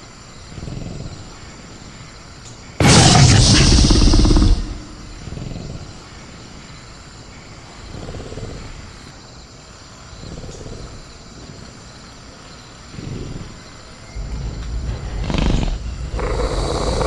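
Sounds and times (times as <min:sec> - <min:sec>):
cricket trill: 0:00.0 - 0:17.0
roaring or cage rattling: 0:02.8 - 0:05.6, 0:14.2 - 0:17.0
creature growling low: 0:02.8 - 0:05.7, 0:14.2 - 0:17.0.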